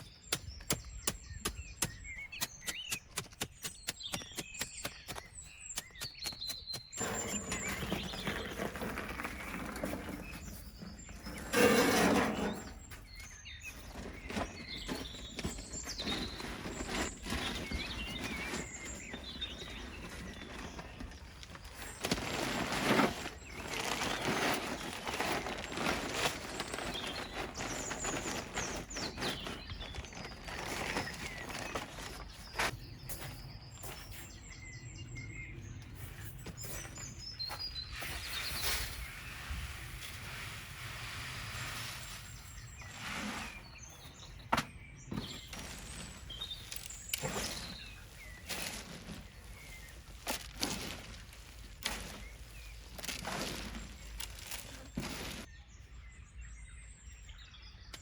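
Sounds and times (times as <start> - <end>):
birds chirping: 0.0 - 58.0
rustling: 7.0 - 32.7, 45.1 - 55.5.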